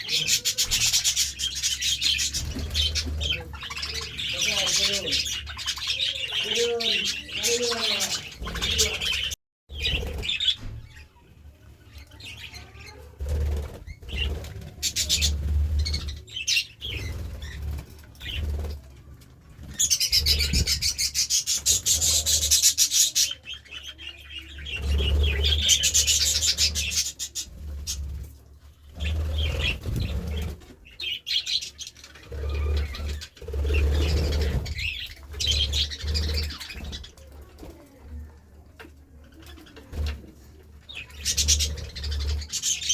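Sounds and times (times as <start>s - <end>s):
budgerigars chirping: 0.0s - 10.5s.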